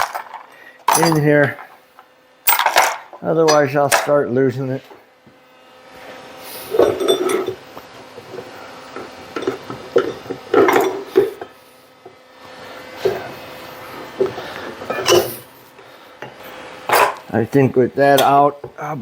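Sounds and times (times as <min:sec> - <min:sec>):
metal parts clinking: 0:00.0 - 0:01.8, 0:02.5 - 0:04.1.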